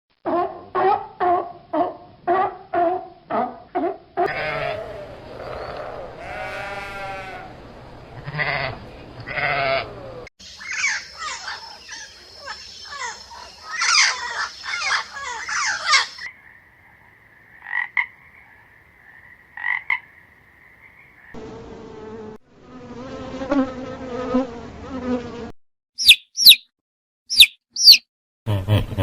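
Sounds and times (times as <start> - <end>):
goat bleating: 4.2 - 7.5, 8.2 - 10.3
high downward-sliding chirps: 26.0 - 26.7, 27.3 - 28.0.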